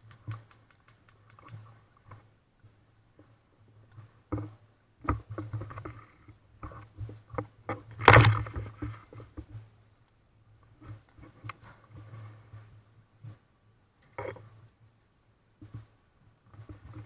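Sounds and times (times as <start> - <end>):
handling knocks and clicks: 0.0 - 2.3, 3.1 - 9.6.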